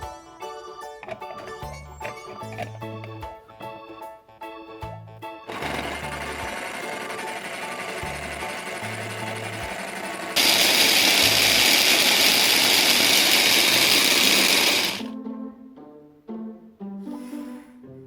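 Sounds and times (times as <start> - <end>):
blender motor whirring: 5.5 - 15.1.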